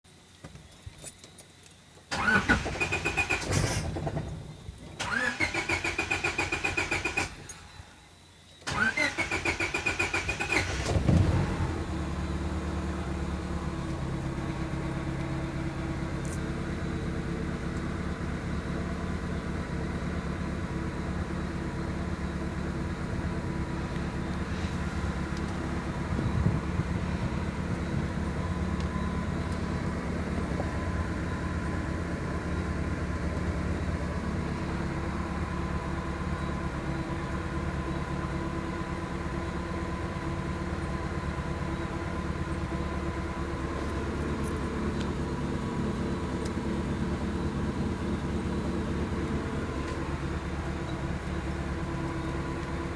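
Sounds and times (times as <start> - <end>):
starter motor cranking engine: 2.1 - 4.3, 5.0 - 7.5, 8.6 - 11.6
car engine idling: 2.1 - 52.9.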